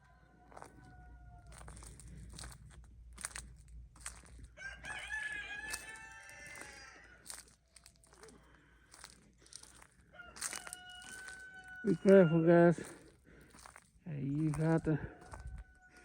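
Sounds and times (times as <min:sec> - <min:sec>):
rooster crowing: 0:00.0 - 0:01.9, 0:04.6 - 0:07.4, 0:10.0 - 0:12.8, 0:14.5 - 0:16.0
footsteps crunching on ice: 0:00.4 - 0:16.0.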